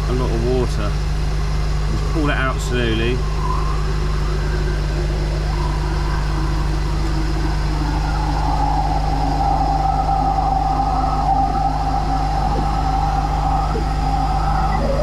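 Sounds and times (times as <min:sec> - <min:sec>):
drain jetter engine and pump running: 0:00.0 - 0:15.0
steady high whine: 0:00.0 - 0:15.0.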